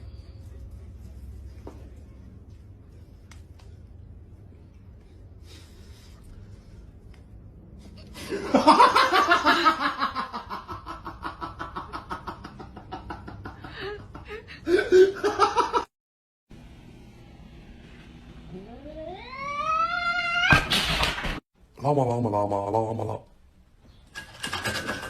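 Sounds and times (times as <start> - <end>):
person laughing: 8.2 - 15.9.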